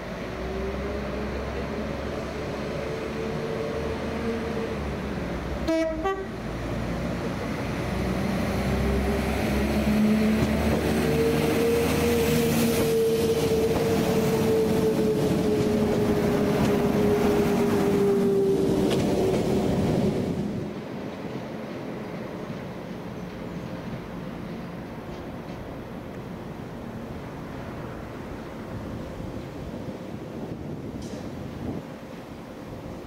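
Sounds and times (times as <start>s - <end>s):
train passing: 0.0s - 33.0s
train horn toot: 5.6s - 6.4s.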